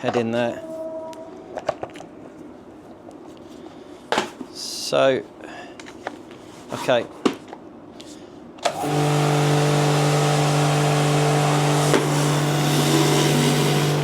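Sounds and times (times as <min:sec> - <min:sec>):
pressure washer motor hum: 0:08.6 - 0:14.0.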